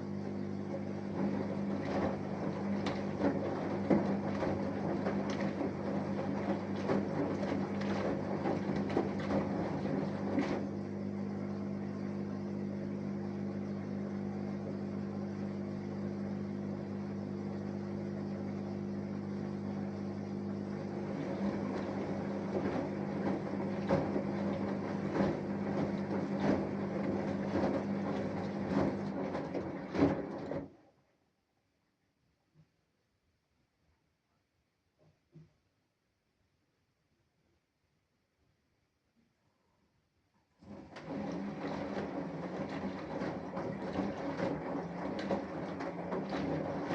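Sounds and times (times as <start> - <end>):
washing machine motor hum: 0.0 - 30.8, 40.6 - 46.9.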